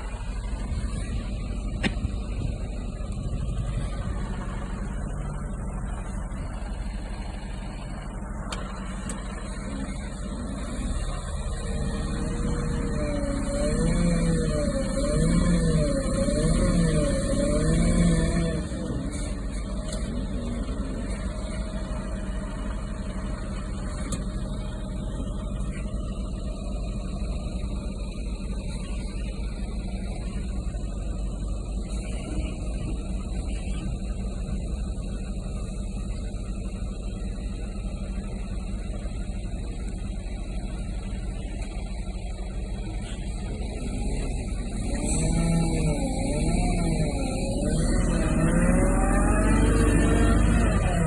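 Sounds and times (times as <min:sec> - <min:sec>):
truck diesel engine rumbling: 0:00.0 - 0:51.0.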